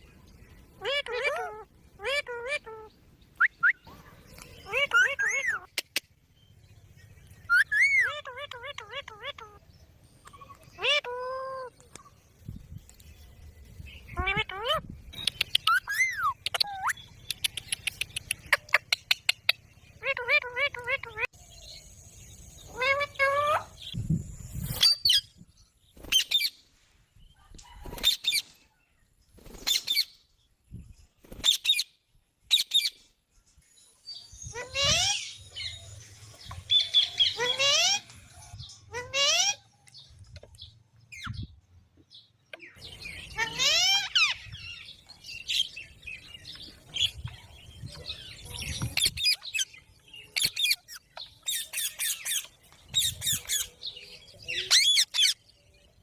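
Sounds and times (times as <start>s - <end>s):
parrot chirping and squawking: 0.8s - 2.9s, 4.6s - 6.0s, 7.5s - 9.6s, 10.5s - 11.8s, 14.1s - 21.4s, 22.7s - 24.0s, 34.5s - 35.7s, 36.7s - 38.1s, 38.9s - 39.7s, 43.0s - 44.9s, 50.4s - 53.7s, 54.5s - 55.4s
parakeet screeching calls: 4.7s - 5.7s, 10.8s - 11.7s, 37.2s - 38.0s, 43.4s - 44.4s.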